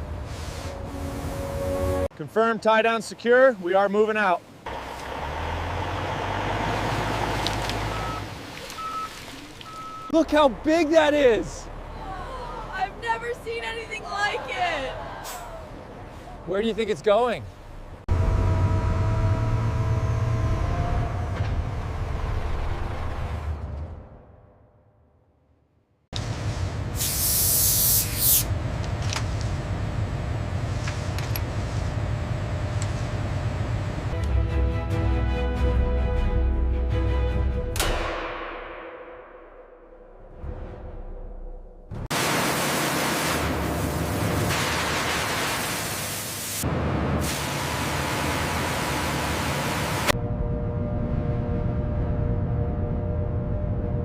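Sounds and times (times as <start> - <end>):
loud hissing spray: 26.3 - 28.5, 42.2 - 46.6, 47.2 - 50.0
low rumble: 38.0 - 42.1, 50.1 - 54.0.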